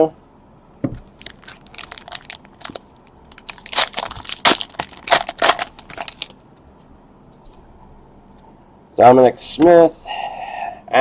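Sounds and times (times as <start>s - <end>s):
card pack wrapper crinkling: 1.1s - 6.4s.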